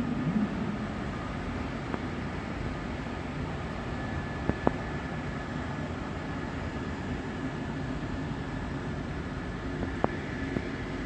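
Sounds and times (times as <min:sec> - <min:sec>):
train rumbling past: 0:00.0 - 0:07.1
high whine: 0:00.0 - 0:11.0.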